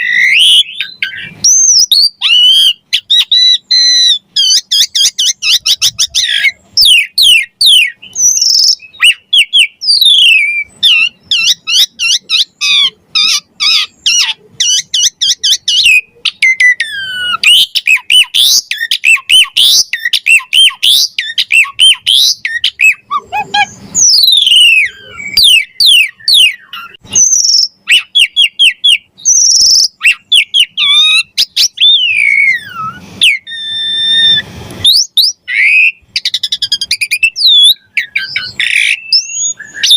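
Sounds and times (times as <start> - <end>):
harsh rasping bird notes: 0.0 - 39.9
starling singing: 0.0 - 39.9.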